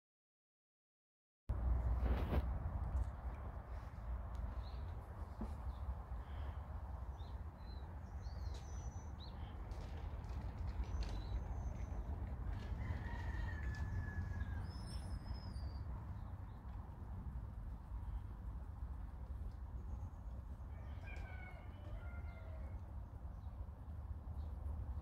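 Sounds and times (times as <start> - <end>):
steady low rumble: 1.5 - 20.8
birds calling: 4.4 - 16.7.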